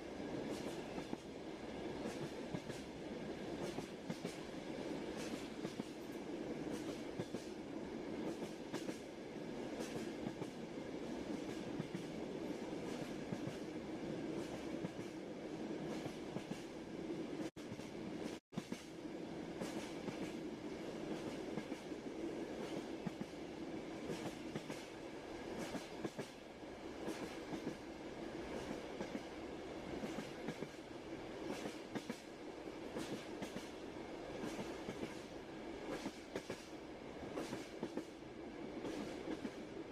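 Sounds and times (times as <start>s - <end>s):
low train rumble: 0.0s - 39.9s
train wheels clattering on rail joints: 6.7s - 7.5s, 8.2s - 9.0s, 17.4s - 19.0s, 19.6s - 20.4s, 32.9s - 33.8s, 35.9s - 36.7s, 37.3s - 38.1s.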